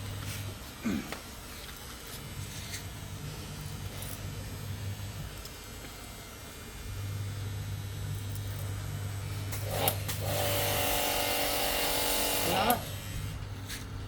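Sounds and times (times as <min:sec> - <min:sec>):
pump whine: 0:03.2 - 0:13.6
pump motor humming: 0:09.5 - 0:13.4.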